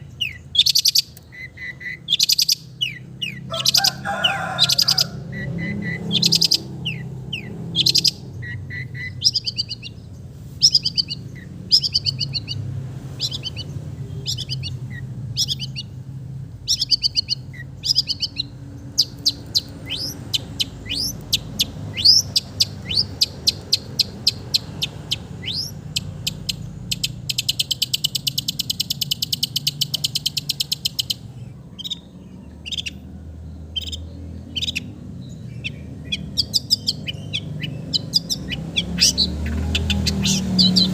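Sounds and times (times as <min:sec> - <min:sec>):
shrike singing varied song: 0:00.0 - 0:40.9.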